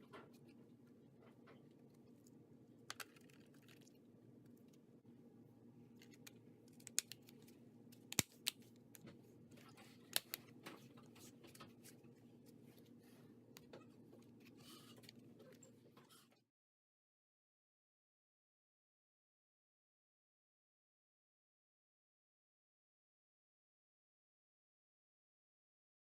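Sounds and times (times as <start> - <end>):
small laptop parts clicking: 6.0 - 9.0.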